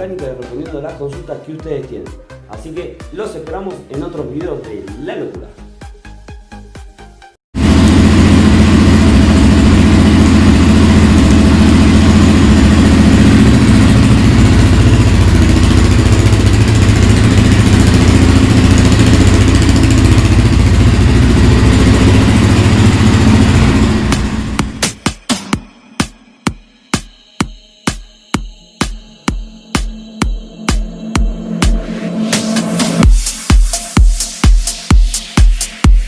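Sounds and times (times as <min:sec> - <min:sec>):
motorcycle engine running: 0:07.6 - 0:25.2, 0:32.5 - 0:35.1.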